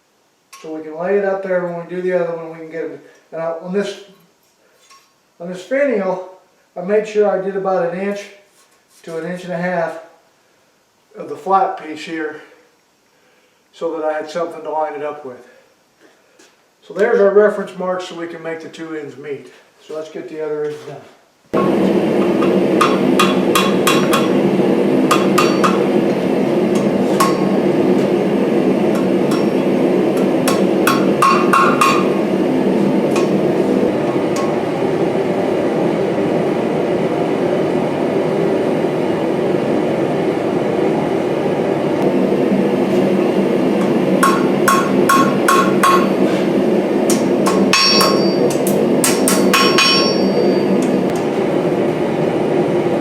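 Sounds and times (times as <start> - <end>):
hammer striking steel on anvil: 21.6 - 24.4, 25.1 - 27.6, 28.9 - 32.2, 33.1 - 33.4, 43.8 - 46.4, 47.1 - 50.8
low rushing noise: 21.6 - 47.4.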